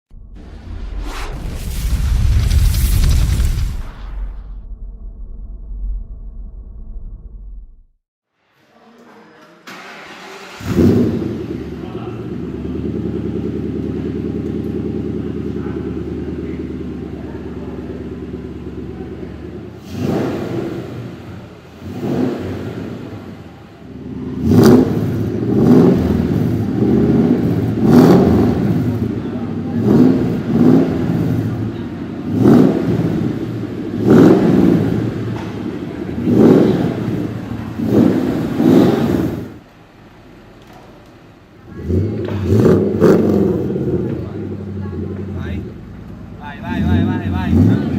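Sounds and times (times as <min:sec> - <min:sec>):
car engine idling and revving: 0:09.7 - 0:47.9.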